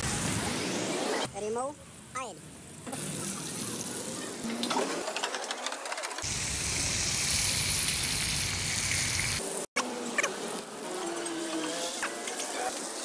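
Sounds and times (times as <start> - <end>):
meat sizzling in hot oil: 6.2 - 9.6.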